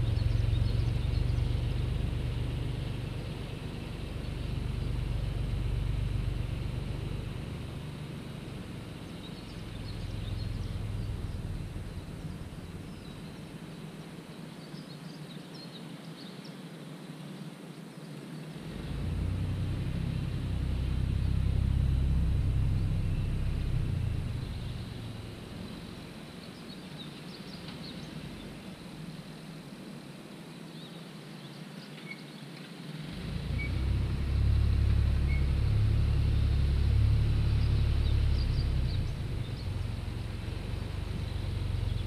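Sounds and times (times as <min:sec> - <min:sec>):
tractor engine rumbling: 0:00.0 - 0:13.9, 0:18.8 - 0:26.3, 0:33.2 - 0:42.0
faint bird chirps: 0:30.7 - 0:32.7.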